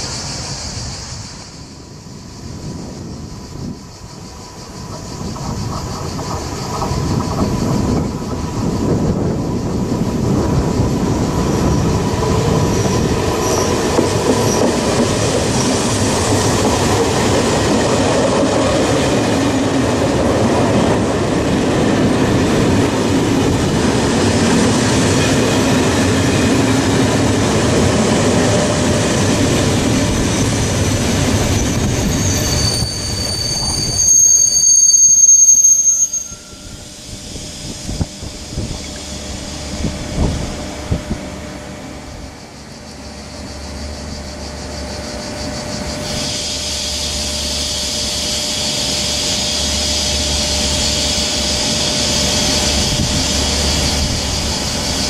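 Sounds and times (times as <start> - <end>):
train wheels clattering on rail: 2.7 - 34.5, 43.9 - 55.0
high wheel squeal: 11.1 - 16.9, 28.4 - 40.2, 43.0 - 55.0.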